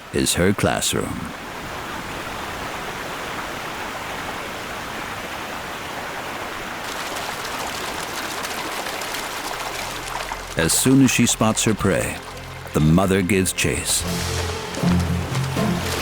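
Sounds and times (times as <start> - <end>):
rushing river water: 0.0 - 16.0.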